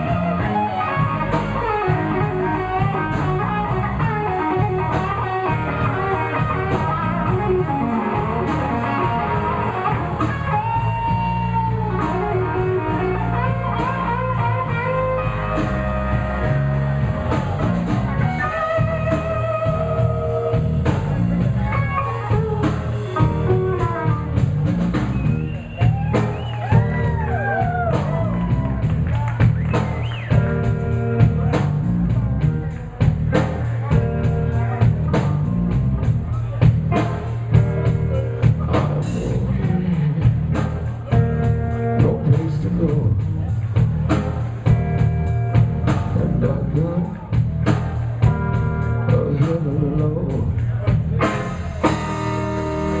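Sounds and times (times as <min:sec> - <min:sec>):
bass line: 0:00.0 - 0:53.0
blues guitar with bent notes: 0:00.0 - 0:53.0
steady drum beat: 0:00.0 - 0:53.0.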